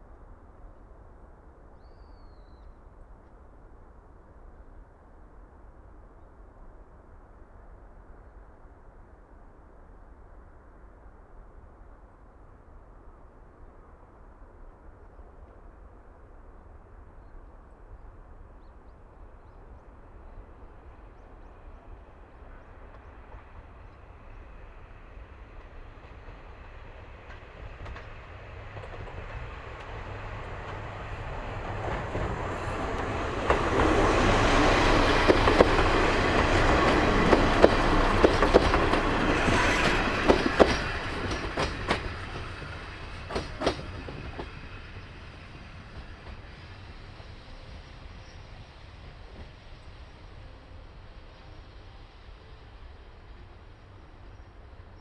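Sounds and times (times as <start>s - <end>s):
diesel railcar passing: 19.3s - 55.0s
wheels clacking over rail joints: 25.6s - 46.8s.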